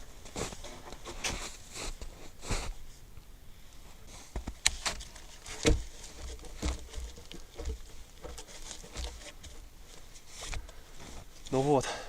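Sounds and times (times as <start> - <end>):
wooden poles knocking: 4.4 - 10.1.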